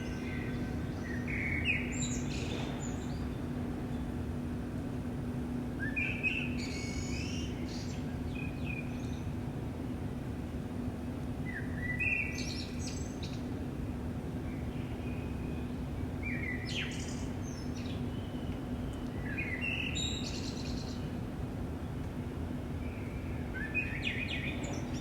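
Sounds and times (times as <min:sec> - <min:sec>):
songbird singing: 0:00.0 - 0:03.4, 0:14.5 - 0:21.1, 0:22.8 - 0:25.0.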